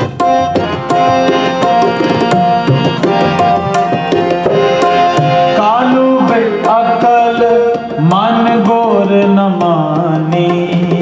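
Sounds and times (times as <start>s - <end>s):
harmonium melody: 0.0s - 11.0s
tabla playing: 0.0s - 11.0s
person singing: 5.4s - 11.0s.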